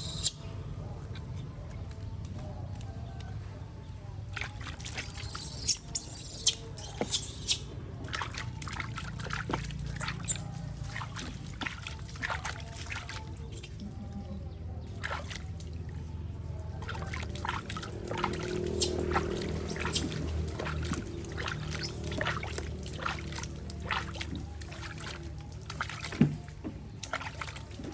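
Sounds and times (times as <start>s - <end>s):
water trickling and pouring: 8.1s - 13.8s, 16.8s - 27.9s.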